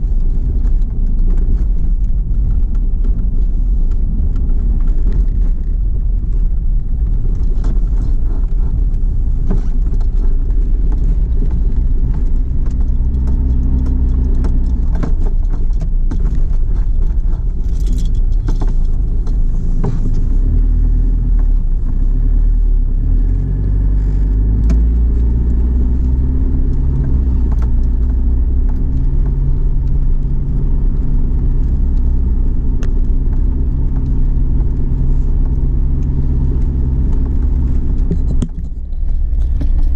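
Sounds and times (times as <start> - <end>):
small rattles and clicks: 0.0 - 22.3, 23.1 - 39.9
car road and engine rumble: 0.0 - 39.9.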